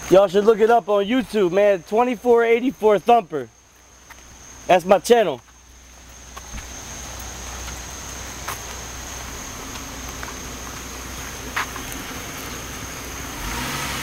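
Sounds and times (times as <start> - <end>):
insects chirring: 0.0 - 14.0
steady hiss: 0.0 - 14.0
car engine: 5.6 - 14.0.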